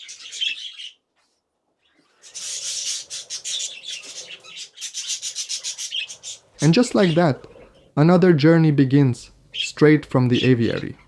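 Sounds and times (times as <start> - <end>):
budgerigars chirping and chattering: 0.0 - 1.0, 1.8 - 8.0, 9.4 - 11.0.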